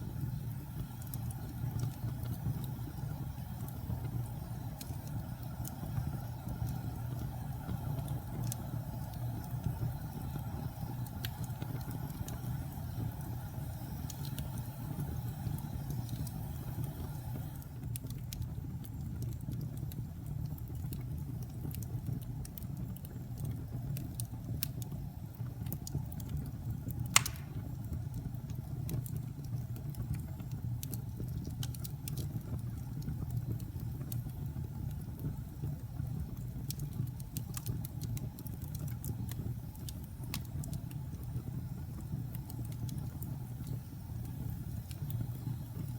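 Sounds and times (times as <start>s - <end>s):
fire crackling: 0.0s - 45.9s
fire rumbling: 0.0s - 45.9s
loud pop from fire: 27.1s - 27.9s.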